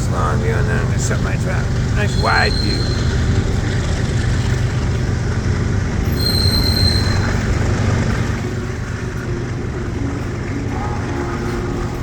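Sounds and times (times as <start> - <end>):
train rumbling past: 0.0 - 12.0
high-pitched wheel squeal: 2.0 - 3.5, 6.0 - 8.2.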